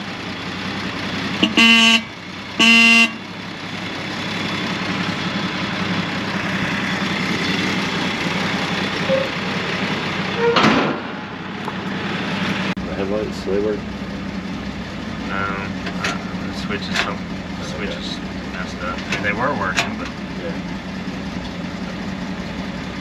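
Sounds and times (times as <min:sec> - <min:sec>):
truck engine idling: 0:00.0 - 0:23.0
truck horn honks: 0:01.4 - 0:03.3, 0:09.0 - 0:09.5, 0:10.3 - 0:10.8.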